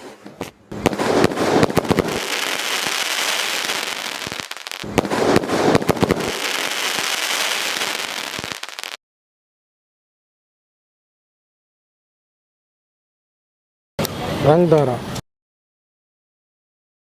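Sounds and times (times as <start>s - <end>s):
firework crackling: 0.0s - 9.0s
firework shells bursting: 0.3s - 9.0s.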